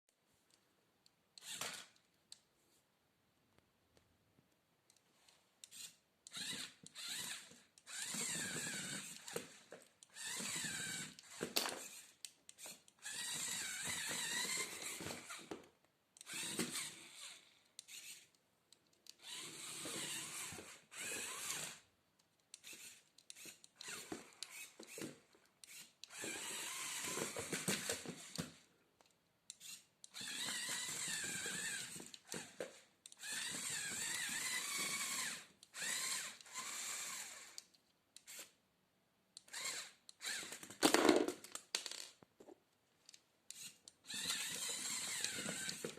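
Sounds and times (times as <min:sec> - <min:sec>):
small electric motors whirring: 0:01.4 - 0:02.0, 0:05.6 - 0:15.6, 0:16.2 - 0:18.4, 0:19.1 - 0:21.9, 0:22.5 - 0:28.7, 0:29.5 - 0:38.6, 0:39.4 - 0:40.8, 0:43.5 - 0:45.9.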